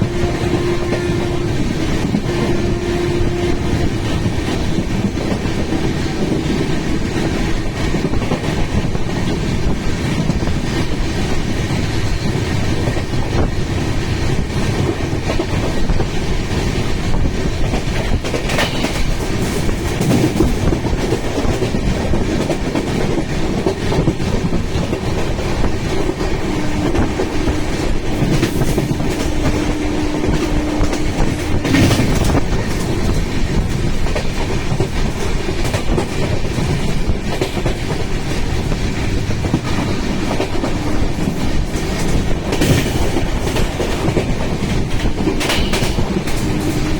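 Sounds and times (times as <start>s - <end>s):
mechanical rumble and rattle: 23.1s - 46.9s.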